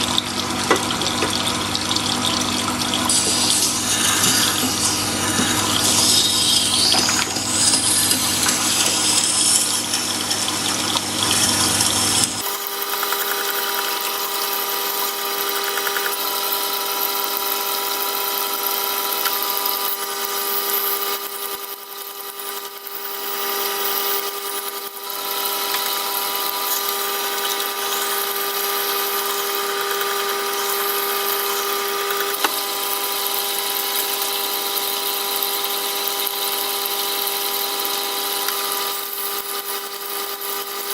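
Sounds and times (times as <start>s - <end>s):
sharpening machine motor hum: 0.0s - 40.9s.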